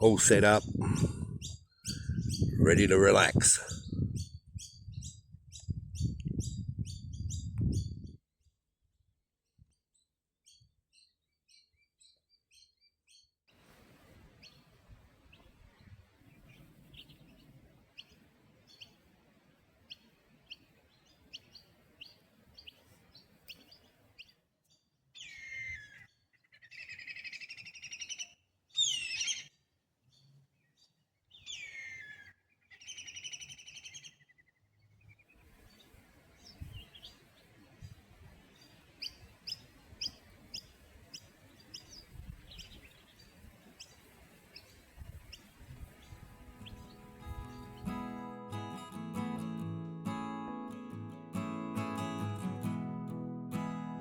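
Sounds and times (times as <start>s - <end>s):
birds chirping: 0.0s - 8.0s, 14.4s - 19.1s, 19.8s - 54.0s
bird calls sweeping downward: 26.7s - 29.5s, 31.3s - 34.4s.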